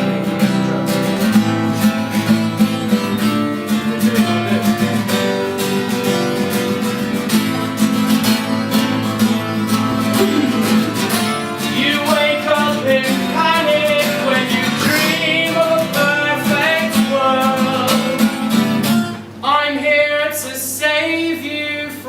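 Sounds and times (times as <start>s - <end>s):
acoustic guitar strumming: 0.0s - 22.0s
wavering melody line: 10.0s - 11.7s.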